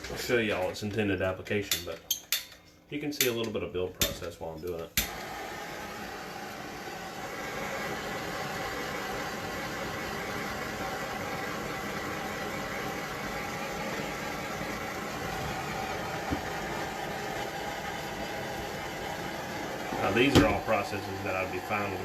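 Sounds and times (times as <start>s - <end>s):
machine hiss with hum: 5.0s - 22.0s.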